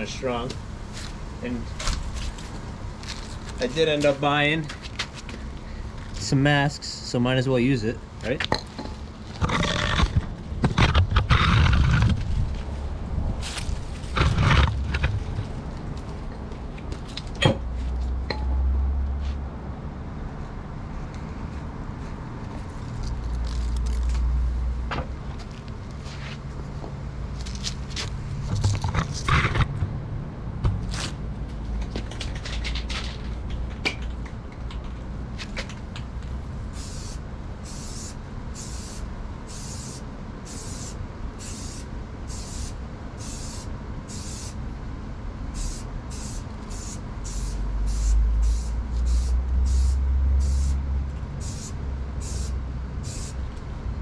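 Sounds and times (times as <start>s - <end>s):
handling knocks and clicks: 30.6s - 36.3s
spray can hissing bursts: 36.7s - 44.6s, 45.6s - 50.8s, 51.4s - 53.4s.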